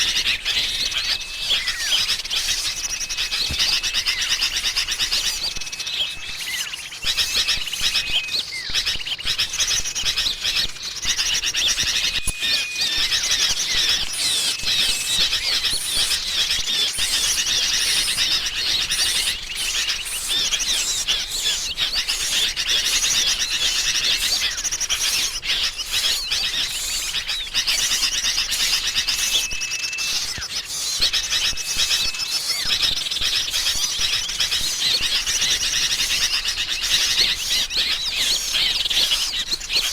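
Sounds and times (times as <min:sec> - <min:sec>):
songbirds chirping and twittering: 0:00.0 - 0:39.9
short whistled bird notes: 0:12.2 - 0:21.8, 0:26.0 - 0:32.8.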